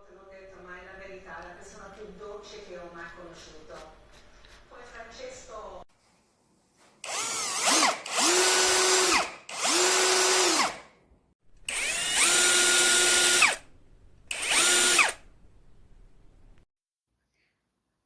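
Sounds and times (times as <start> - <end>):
cordless drill motor whining: 7.0 - 10.8, 11.7 - 13.6, 14.3 - 15.2.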